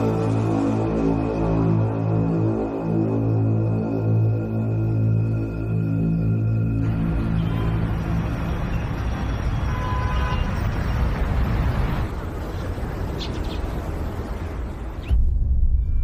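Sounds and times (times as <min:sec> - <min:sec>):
traffic noise: 0:06.8 - 0:15.2.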